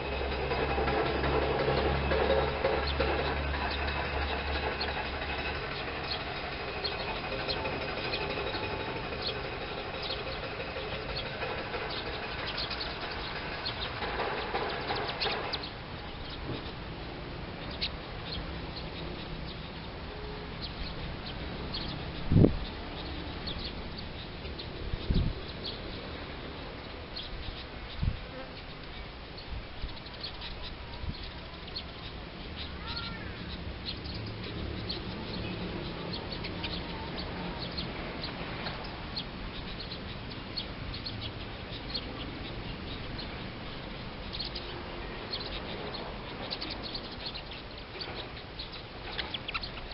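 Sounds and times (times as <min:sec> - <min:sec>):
bird and insect chirps: 0:00.0 - 0:49.9.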